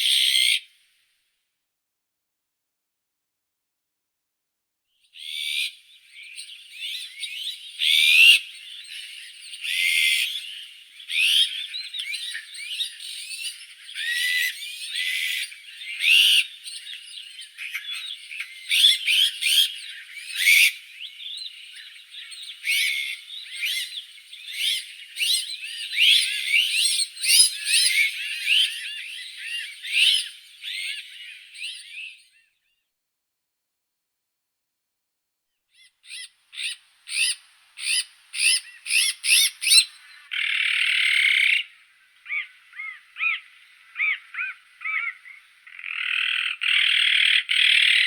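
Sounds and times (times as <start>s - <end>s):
magpie chattering and whistling: 36.0s - 41.6s.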